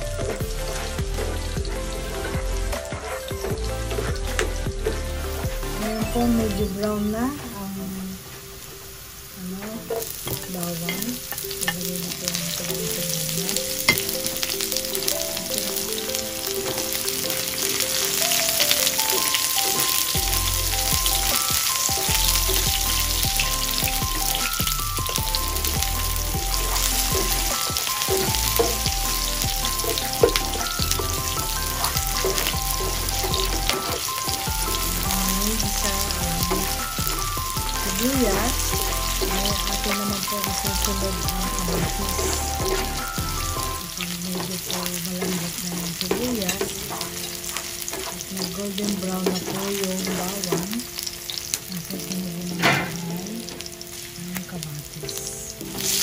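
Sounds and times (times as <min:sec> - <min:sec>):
background music with bass line: 0:00.0 - 0:07.2, 0:12.8 - 0:44.0
garlic and onion sizzling in oil: 0:00.0 - 0:56.0
spatula stirring in pan: 0:16.0 - 0:50.7.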